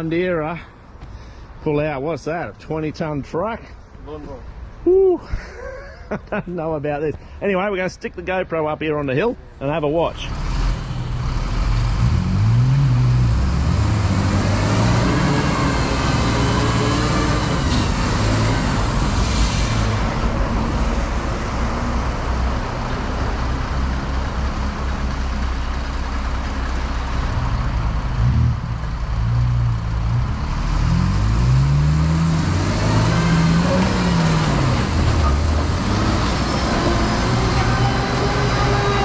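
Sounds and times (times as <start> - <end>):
vehicle engines straining: 8.9 - 39.0.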